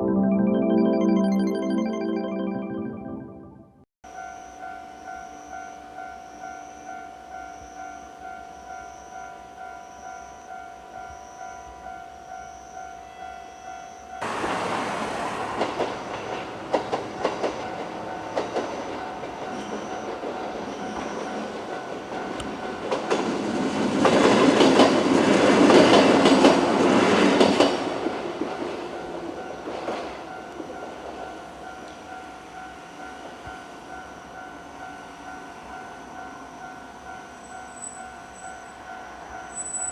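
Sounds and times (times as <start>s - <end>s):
crossing warning bell ringing: 4.1s - 14.6s, 17.2s - 23.2s, 28.8s - 39.9s
wheels clacking over rail joints: 14.2s - 31.2s
train rumbling past: 14.2s - 39.8s.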